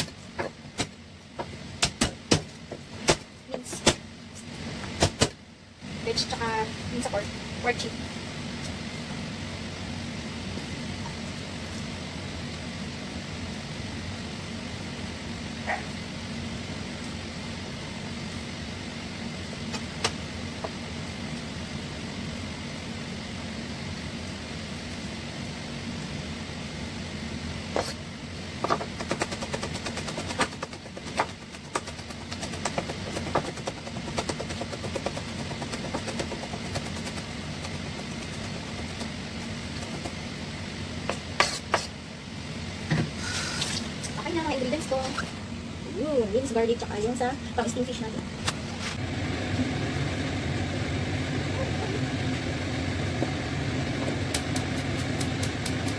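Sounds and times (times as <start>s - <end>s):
machine hum: 0.0s - 55.9s.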